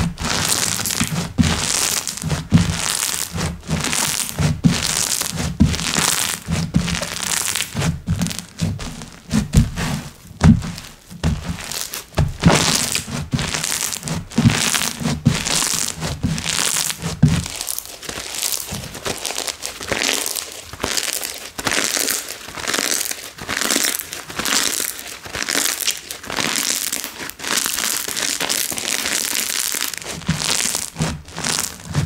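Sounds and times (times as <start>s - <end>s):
slime squishing by hand: 0.0s - 32.0s
soft low thuds: 0.9s - 17.6s.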